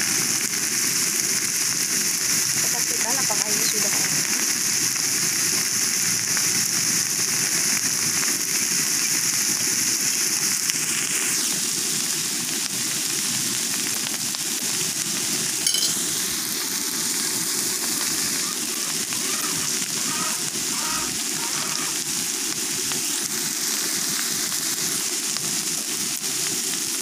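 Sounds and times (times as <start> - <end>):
food sizzling in a wok: 0.0 - 27.0
metal spoon stirring: 15.7 - 16.1.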